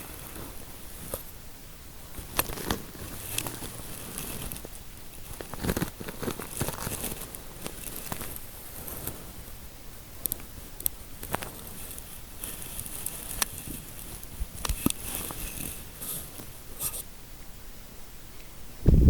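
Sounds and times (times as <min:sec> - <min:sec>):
fingers scratching through hair: 0:11.2 - 0:17.0.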